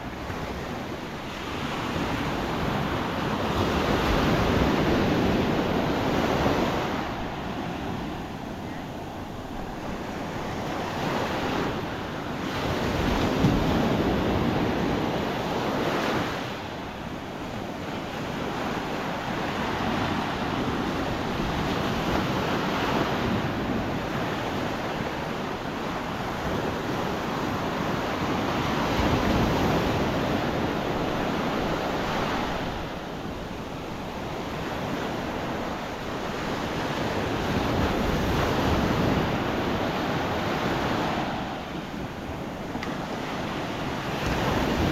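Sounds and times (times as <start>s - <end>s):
surf breaking on beach: 0.0s - 44.9s
wind buffeting microphone: 0.0s - 44.9s.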